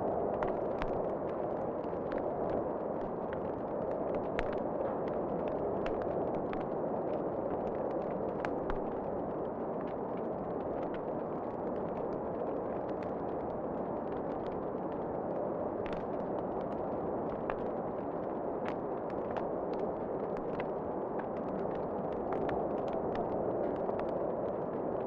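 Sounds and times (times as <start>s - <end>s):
fire pops and snaps: 0.2s - 6.7s, 7.4s - 9.1s, 15.8s - 25.0s.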